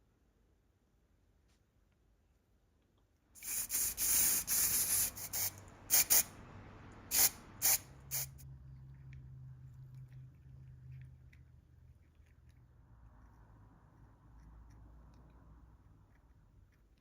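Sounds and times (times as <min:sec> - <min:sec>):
pressurised spray hissing: 0:03.4 - 0:06.3, 0:07.1 - 0:08.4
low steady hum: 0:04.2 - 0:17.0.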